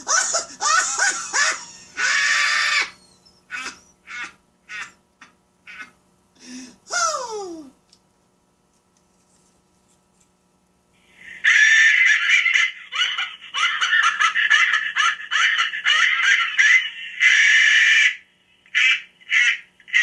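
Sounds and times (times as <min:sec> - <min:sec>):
recorded laugh through small speaker: 0:00.0 - 0:06.0, 0:11.2 - 0:20.0.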